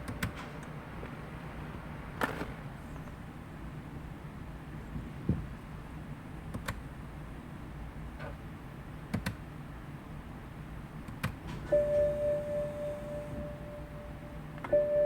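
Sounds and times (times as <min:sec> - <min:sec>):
low steady hum: 0:09.6 - 0:15.0
steady chime tone: 0:11.7 - 0:15.0.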